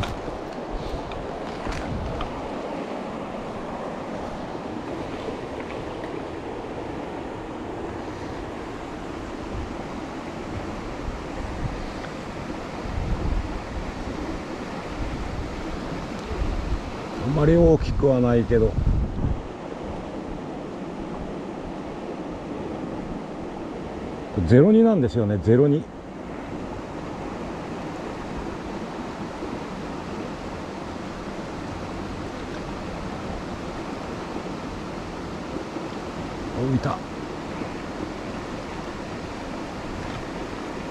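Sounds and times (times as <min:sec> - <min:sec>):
wind buffeting microphone: 0:00.0 - 0:24.6
river current rushing: 0:00.0 - 0:40.9.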